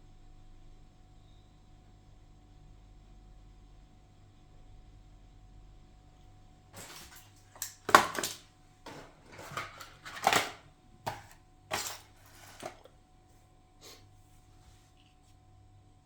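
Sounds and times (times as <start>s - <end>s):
objects clattering and knocking: 6.8s - 12.9s.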